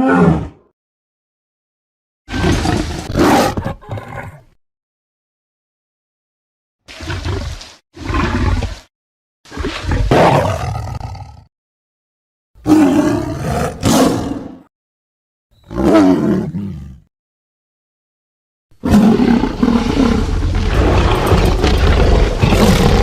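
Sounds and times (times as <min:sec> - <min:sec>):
tiger roaring: 0:02.3 - 0:04.4, 0:09.5 - 0:11.5, 0:12.6 - 0:14.7, 0:15.7 - 0:17.1, 0:18.8 - 0:23.0.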